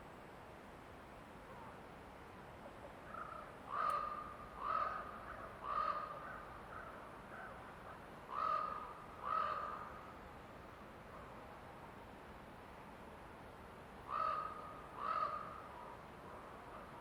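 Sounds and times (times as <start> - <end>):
faint forest background: 0.0 - 17.0
bird cawing: 3.1 - 7.6, 8.3 - 10.0, 14.1 - 15.7.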